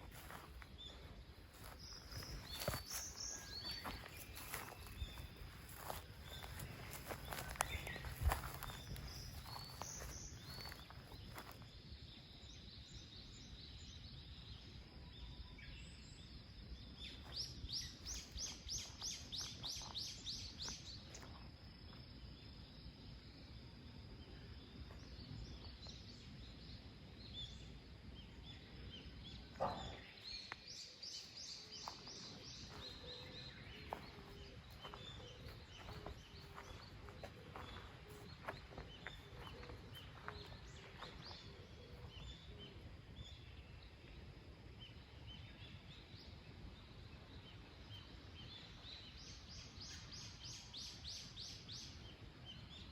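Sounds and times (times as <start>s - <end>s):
faint bird calls: 29.4s - 43.5s.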